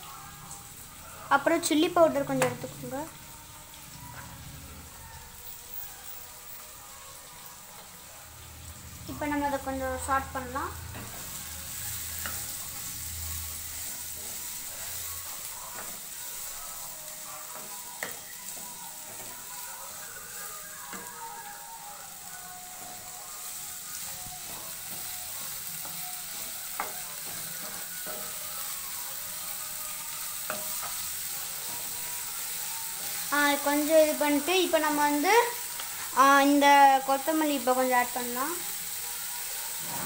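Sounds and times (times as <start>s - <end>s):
vegetables sizzling in hot oil: 0.0s - 40.0s
spatula tapping a pan: 2.4s - 2.6s, 17.5s - 19.5s, 24.4s - 28.4s, 30.4s - 31.9s.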